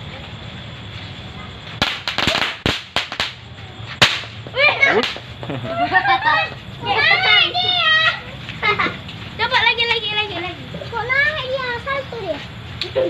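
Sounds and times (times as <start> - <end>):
firecrackers popping: 1.6 - 5.6
firecracker sharp cracks: 1.8 - 5.4.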